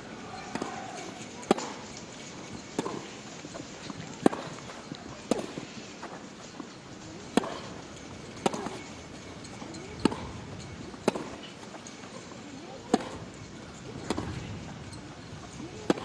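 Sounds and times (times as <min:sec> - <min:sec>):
tennis racket striking ball: 0:00.4 - 0:01.9, 0:02.8 - 0:03.6, 0:04.2 - 0:05.7, 0:07.3 - 0:08.9, 0:10.0 - 0:12.2, 0:12.9 - 0:13.3, 0:14.0 - 0:14.5, 0:15.8 - 0:16.0.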